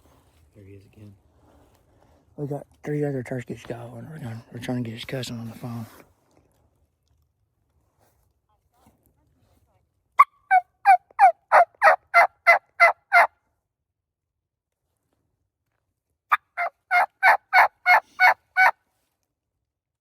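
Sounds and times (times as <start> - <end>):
turkey call yelps: 10.2 - 13.3, 16.3 - 18.7.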